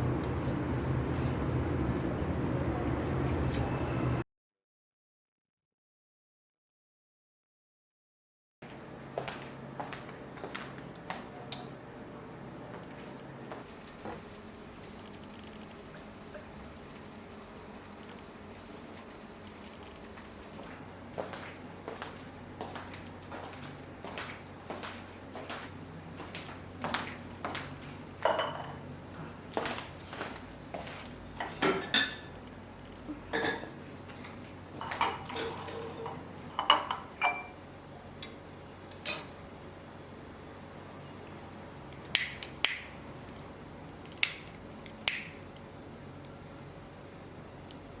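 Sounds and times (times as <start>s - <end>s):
dishes and cutlery clinking: 28.2s - 28.8s, 33.3s - 33.8s, 34.8s - 37.6s.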